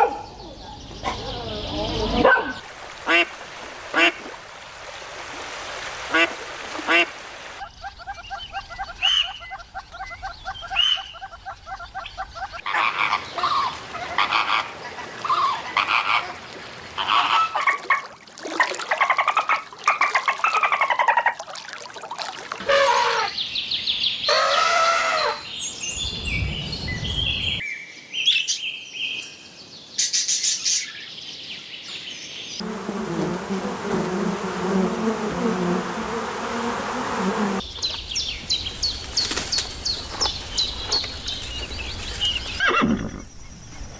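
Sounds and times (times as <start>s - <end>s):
low buzzing chorus: 32.6s - 42.2s.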